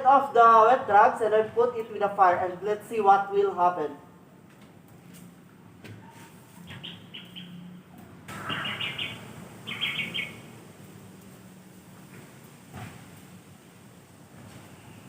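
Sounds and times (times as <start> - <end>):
birds chirping in trills: 6.6 - 10.7.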